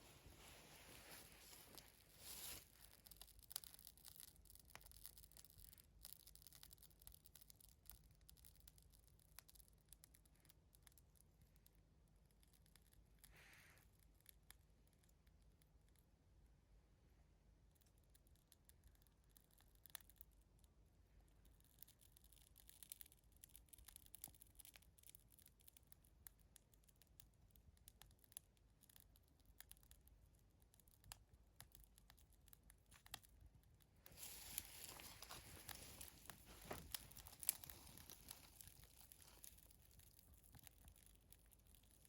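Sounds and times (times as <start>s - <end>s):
fire rustling hiss: 0.0s - 2.9s, 34.0s - 39.6s
kindling crackling and clicking: 22.3s - 42.0s.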